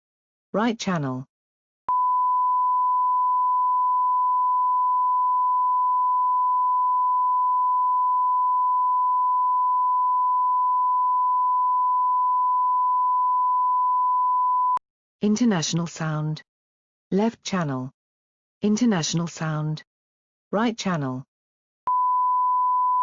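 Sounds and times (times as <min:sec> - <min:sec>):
steady sine wave tone: 0:01.9 - 0:14.8, 0:21.9 - 0:23.0.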